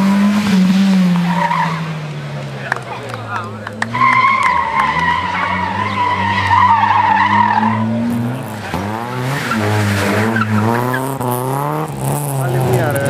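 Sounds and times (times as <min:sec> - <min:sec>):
car engine revving: 0:00.0 - 0:13.0
tyre squeal: 0:03.9 - 0:08.0.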